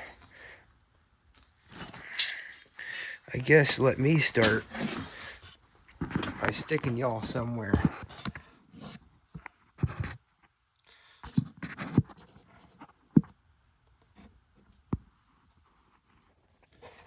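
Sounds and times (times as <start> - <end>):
scraping and rustling: 3.4 - 10.3.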